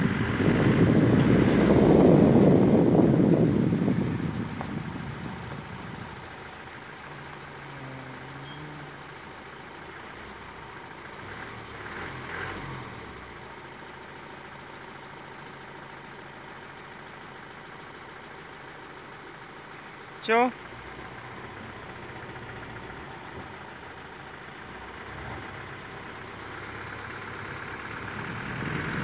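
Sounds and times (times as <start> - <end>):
car driving noise: 0.0 - 29.0
car engine idling: 0.0 - 29.0
faint low hums: 0.6 - 10.5.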